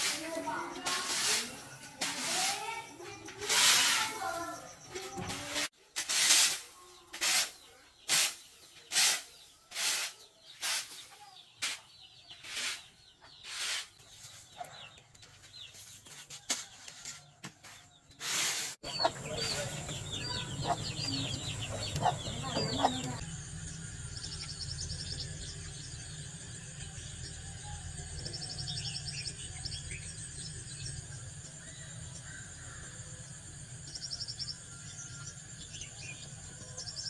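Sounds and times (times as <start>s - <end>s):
chickens chirping: 18.8s - 23.3s.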